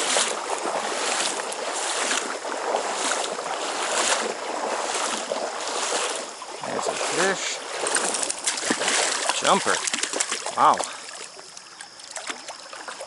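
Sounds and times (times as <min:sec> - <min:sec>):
stream water rushing and splashing: 0:00.0 - 0:13.0.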